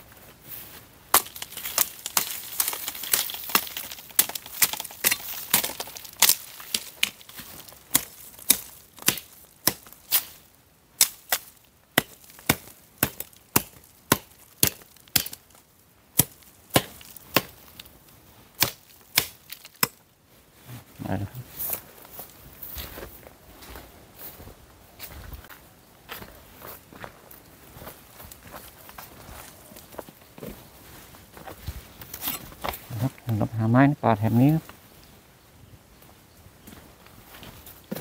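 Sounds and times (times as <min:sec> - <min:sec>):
dry wood being chopped: 0:01.1 - 0:10.3, 0:11.0 - 0:17.9, 0:18.6 - 0:20.0.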